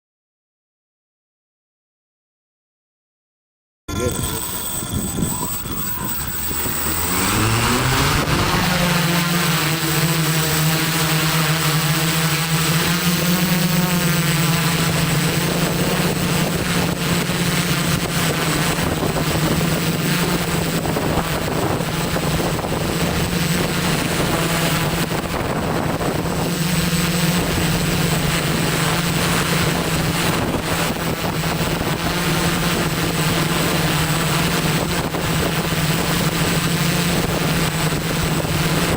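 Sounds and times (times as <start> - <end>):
drone propellers humming: 3.9 - 38.9
wind on microphone: 4.0 - 9.6, 14.6 - 38.9.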